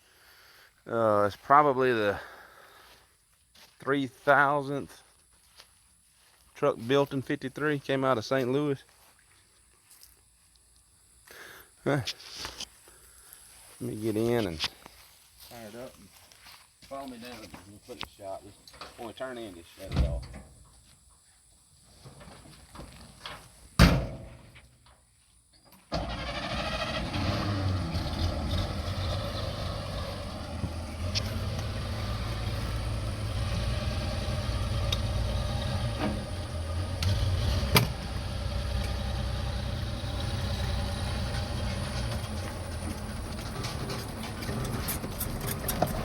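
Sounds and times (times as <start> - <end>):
loud door slam: 23.8 - 24.3
pickup engine starting and running: 25.9 - 46.0.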